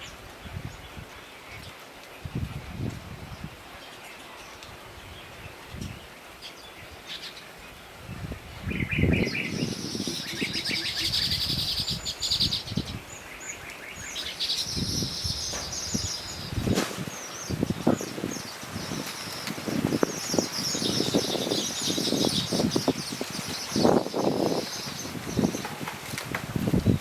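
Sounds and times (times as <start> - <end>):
small bird chirping in trills: 8.8 - 25.7.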